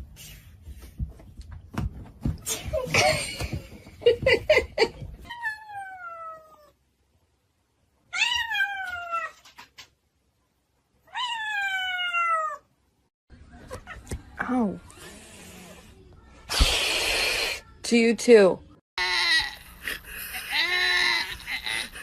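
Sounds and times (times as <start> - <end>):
cat meowing: 11.1 - 12.7.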